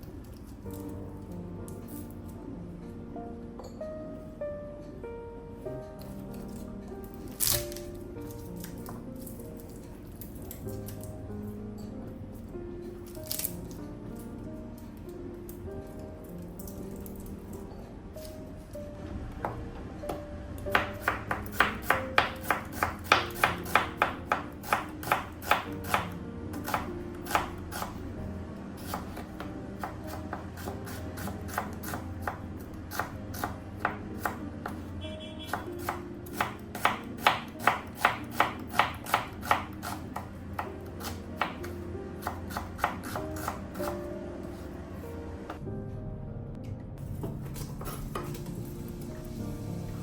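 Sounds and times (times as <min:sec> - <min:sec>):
soft background music: 0:00.0 - 0:50.0
knife chopping on cutting board: 0:20.7 - 0:28.0, 0:28.8 - 0:34.9, 0:35.5 - 0:44.6.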